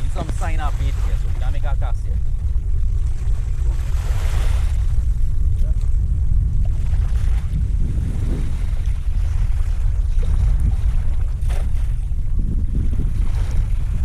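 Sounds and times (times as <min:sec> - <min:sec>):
water washing at shore: 0:00.0 - 0:14.0
wind buffeting microphone: 0:00.0 - 0:14.0
water splash: 0:06.6 - 0:12.1.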